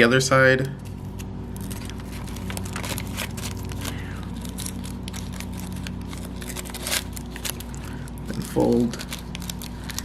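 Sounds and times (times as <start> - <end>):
steady low hum: 0.0 - 10.0
aluminium foil crinkling: 0.8 - 10.0.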